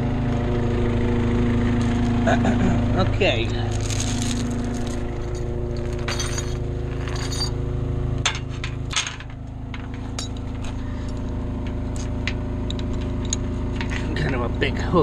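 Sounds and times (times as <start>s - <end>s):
diesel engine running: 0.0s - 15.0s
metallic clinks and clanks: 3.7s - 7.6s, 8.2s - 14.1s.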